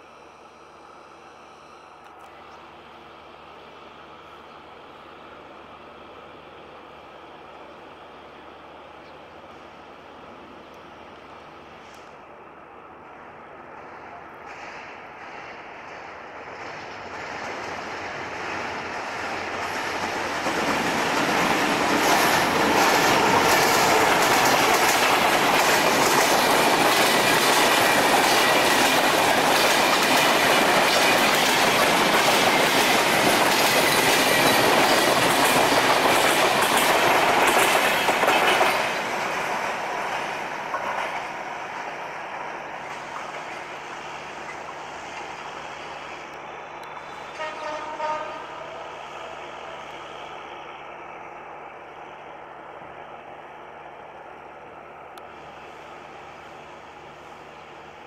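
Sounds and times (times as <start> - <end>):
passenger train passing: 0.0 - 58.0
wheels clattering over rail joints: 19.8 - 41.3.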